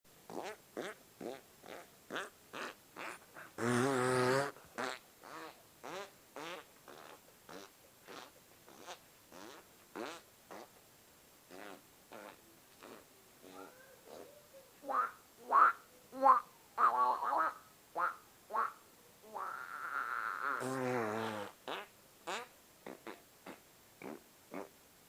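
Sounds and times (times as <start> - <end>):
long wobbling fart: 0.3 - 10.7, 11.5 - 13.6, 19.4 - 24.7
short fart sounds: 0.3 - 10.7, 11.5 - 13.6, 20.4 - 24.7.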